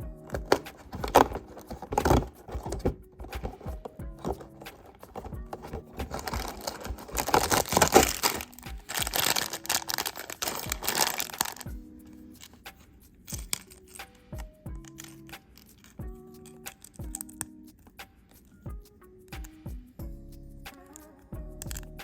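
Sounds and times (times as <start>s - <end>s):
soft background music: 0.0s - 22.0s
packaging crinkling and tearing: 0.3s - 11.7s.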